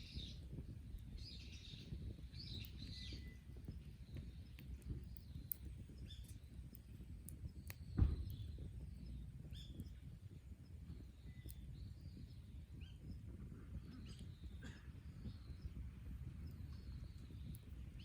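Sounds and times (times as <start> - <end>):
small birds chirping: 0.0 - 18.0
wood fire popping: 0.0 - 18.0
loud thump: 8.0 - 8.4.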